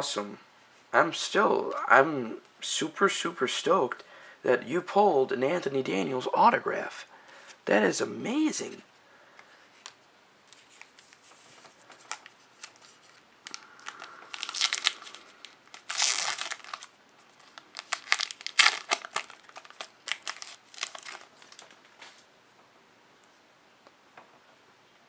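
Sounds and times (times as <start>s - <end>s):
card pack wrapper tearing and crinkling: 9.8s - 22.2s.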